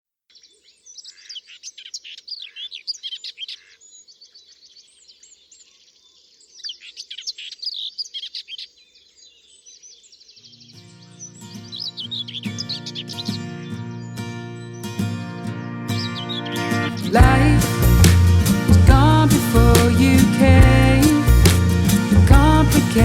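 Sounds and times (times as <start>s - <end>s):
songbirds chirping and trilling: 0.3s - 23.0s
music: 10.9s - 23.0s.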